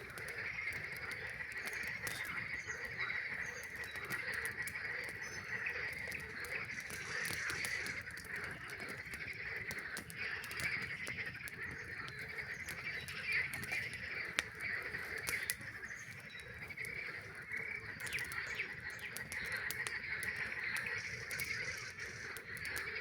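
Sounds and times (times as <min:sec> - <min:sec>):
campfire crackling and popping: 0:00.0 - 0:23.0
chorus of frogs calling: 0:00.0 - 0:23.0.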